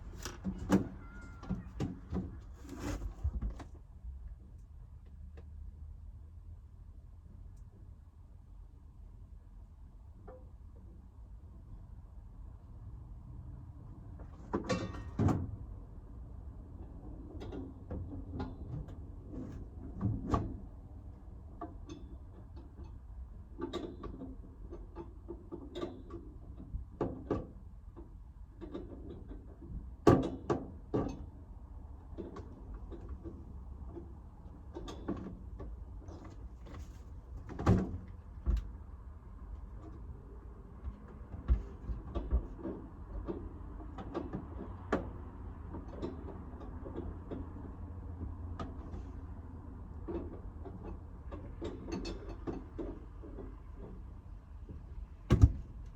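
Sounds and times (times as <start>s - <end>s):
knocks and clunks: 0.0s - 3.8s, 54.7s - 55.9s.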